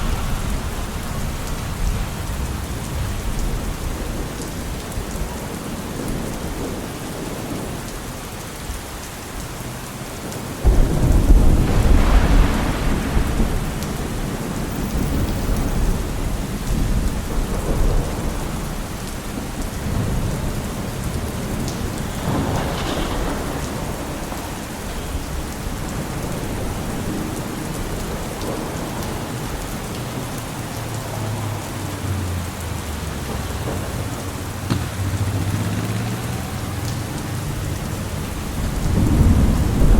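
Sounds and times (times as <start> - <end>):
loud deep rumble: 0.0 - 4.2, 10.6 - 18.5
steady rain falling: 0.0 - 39.9.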